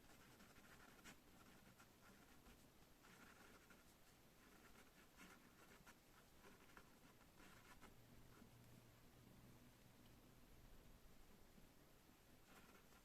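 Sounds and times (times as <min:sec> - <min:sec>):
pen scratching on paper: 0:00.0 - 0:08.5, 0:12.4 - 0:13.0.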